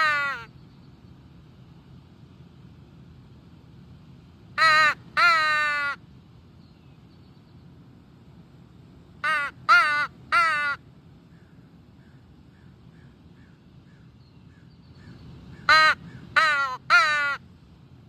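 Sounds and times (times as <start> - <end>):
mouth-blown crow call caws: 0.0 - 0.5, 4.6 - 6.0, 9.2 - 10.8, 12.0 - 17.4.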